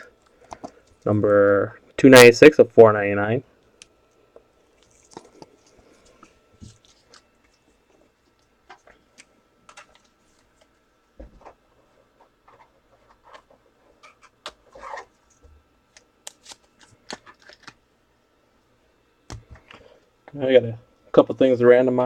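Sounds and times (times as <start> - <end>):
soft rustles of handling: 4.0 - 15.5.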